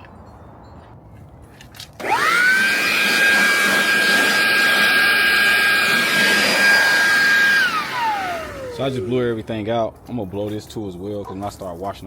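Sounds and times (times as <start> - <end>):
air blower whine and rush: 2.0 - 9.4.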